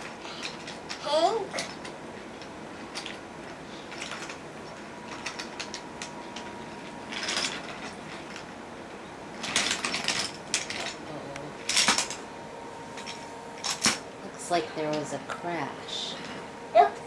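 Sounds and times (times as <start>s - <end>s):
toy trains clattering on wooden track: 0.0s - 1.0s, 1.6s - 8.6s, 9.3s - 12.2s.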